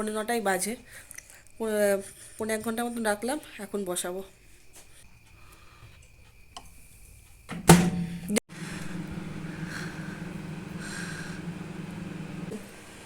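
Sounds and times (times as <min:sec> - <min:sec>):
microwave oven humming: 0:07.5 - 0:13.0.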